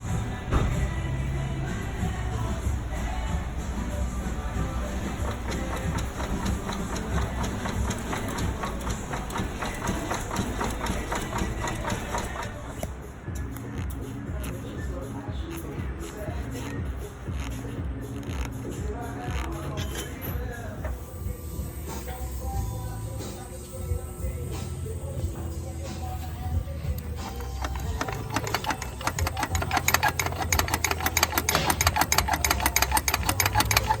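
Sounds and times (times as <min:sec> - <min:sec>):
car engine idling with clattering: 0:00.1 - 0:12.9, 0:27.1 - 0:34.0.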